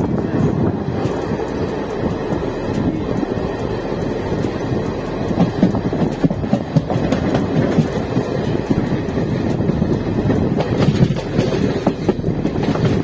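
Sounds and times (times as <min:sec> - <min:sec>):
train wheels rumbling on rails: 0:00.0 - 0:13.0
wheels clacking over rail joints: 0:00.0 - 0:13.0.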